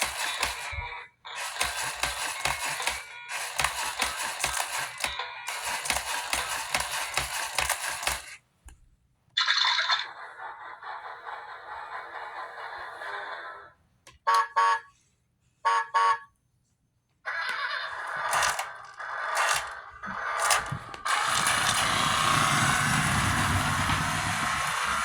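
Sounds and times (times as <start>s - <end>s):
toy horn beeping: 0.0s - 8.3s, 14.2s - 15.0s, 15.6s - 16.3s, 18.3s - 19.8s.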